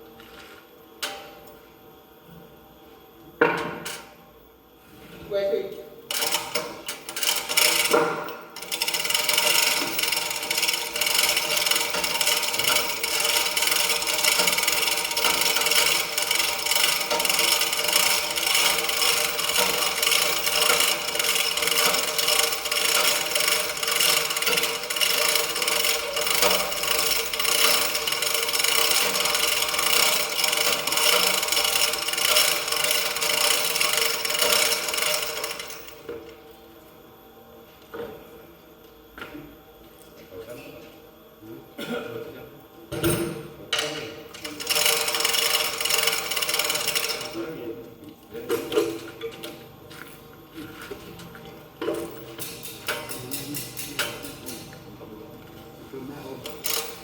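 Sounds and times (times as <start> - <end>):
small machine clattering: 6.1 - 36.2, 43.7 - 47.6, 51.8 - 54.8, 56.4 - 57.0.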